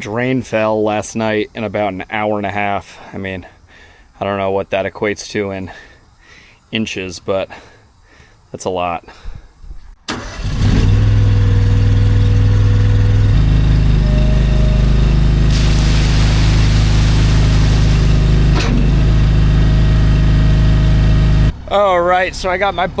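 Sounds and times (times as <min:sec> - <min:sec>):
excavator diesel engine running: 0:10.1 - 0:23.0.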